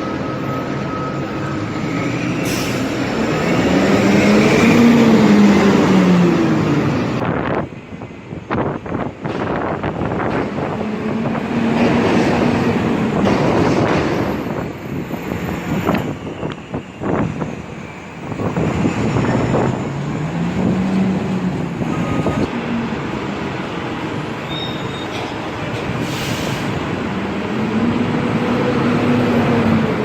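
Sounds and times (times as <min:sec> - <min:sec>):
bus engine droning: 0:00.0 - 0:30.0.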